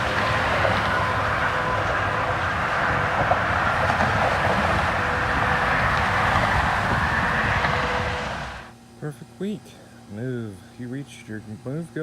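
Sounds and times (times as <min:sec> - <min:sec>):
wind and road rushing: 0:00.0 - 0:08.7.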